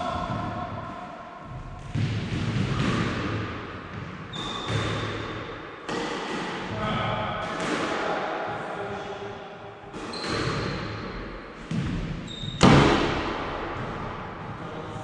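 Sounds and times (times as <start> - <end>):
squash ball smacks echoing: 1.7 - 8.2, 9.9 - 14.4.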